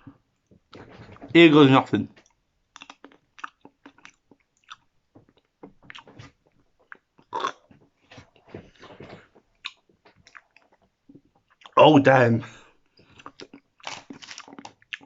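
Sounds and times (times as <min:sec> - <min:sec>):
person chewing blueberries: 0:02.7 - 0:11.8, 0:12.8 - 0:15.0.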